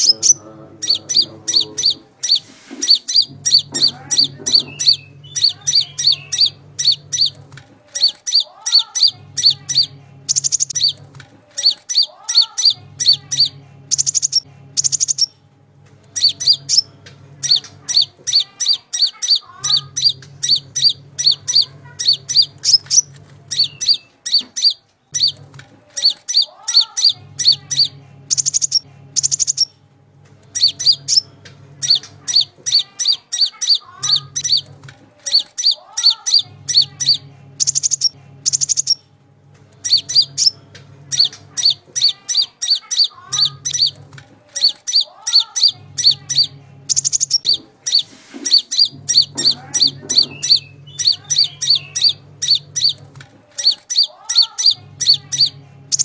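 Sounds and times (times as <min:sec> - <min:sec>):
songbird chirping: 0:00.0 - 0:15.4, 0:16.0 - 0:56.0
low hum: 0:00.0 - 0:44.8.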